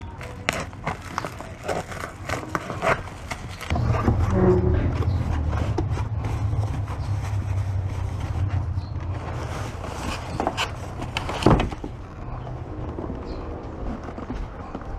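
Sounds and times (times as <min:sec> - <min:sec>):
packaging knocks and clicks: 0:00.0 - 0:03.8, 0:09.3 - 0:12.2
steady low rumble: 0:01.9 - 0:14.9.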